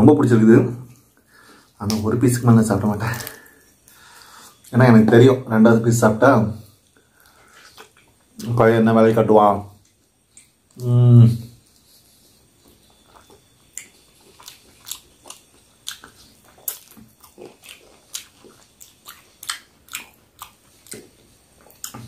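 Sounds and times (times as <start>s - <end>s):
person chewing wet mouth clicks: 12.9s - 21.1s.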